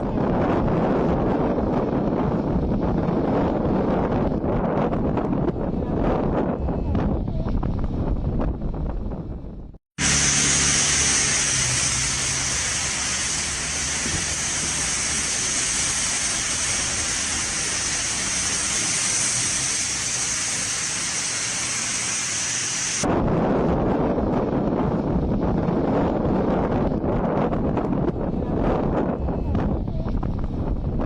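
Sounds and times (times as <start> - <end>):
low wind rumble: 0.0 - 31.0
loud hiss of storm noise: 10.0 - 31.0.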